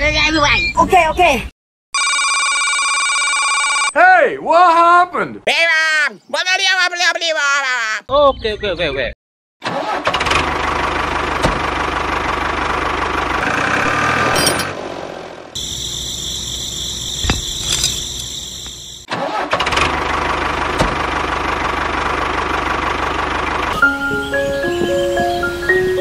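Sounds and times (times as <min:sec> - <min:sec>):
tractor diesel engine chugging: 0:10.5 - 0:13.9, 0:19.8 - 0:26.0.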